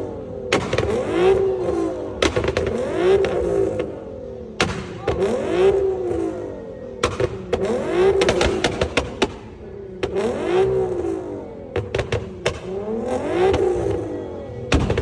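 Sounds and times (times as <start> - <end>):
car engine revving: 0.0 - 15.0
exhaust cracks and pops: 7.0 - 15.0.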